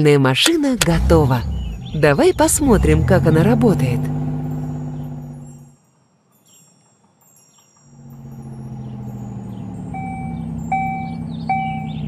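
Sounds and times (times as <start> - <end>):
low engine-like hum: 0.8 - 5.7, 8.0 - 12.0
short chime-like tones: 6.6 - 12.0.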